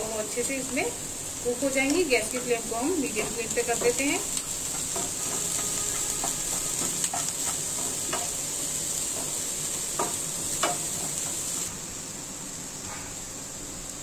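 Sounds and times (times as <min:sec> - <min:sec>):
vegetables sizzling in oil: 0:00.0 - 0:14.0
wooden spatula scraping and tapping pan: 0:02.3 - 0:08.4.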